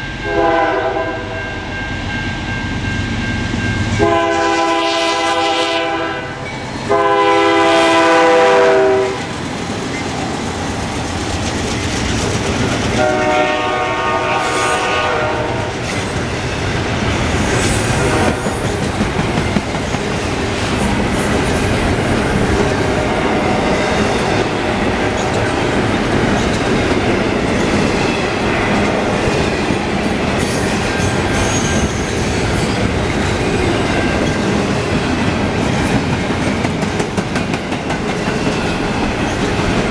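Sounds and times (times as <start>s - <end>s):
locomotive air horn blasts: 0.2s - 1.4s, 4.0s - 9.3s, 13.0s - 15.7s, 18.0s - 18.4s
freight train wheels clacking: 6.4s - 39.9s.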